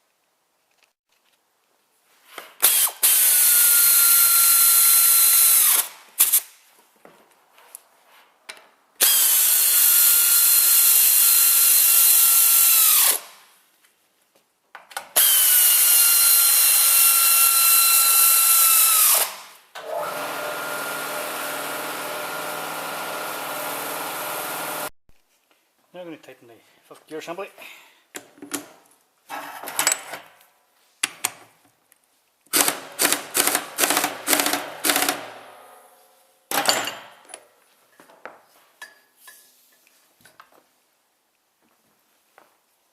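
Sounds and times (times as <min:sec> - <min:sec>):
power tool whining: 0:15.2 - 0:24.9.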